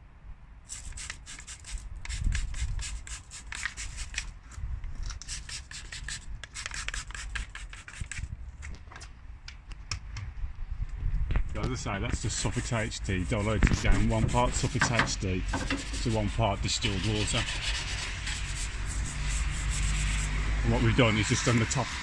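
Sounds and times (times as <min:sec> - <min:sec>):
brush scrubbing plastic: 0:00.7 - 0:04.4, 0:05.2 - 0:08.3, 0:12.2 - 0:22.0.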